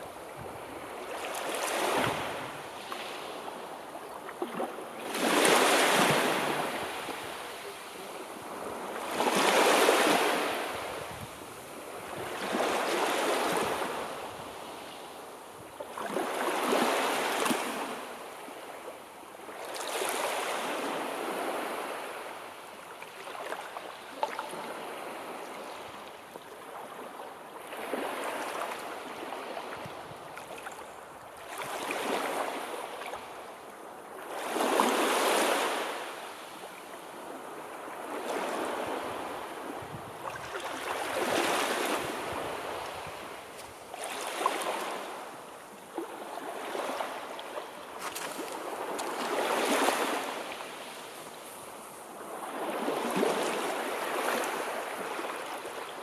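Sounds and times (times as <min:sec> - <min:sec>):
sea waves breaking: 0:38.0 - 0:55.8.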